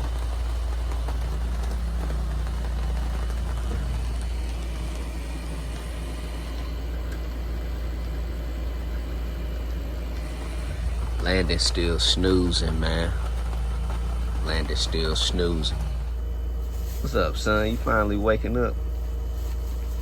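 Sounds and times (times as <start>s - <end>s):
constant hiss: 0.0s - 20.0s
low engine-like drone: 0.0s - 20.0s.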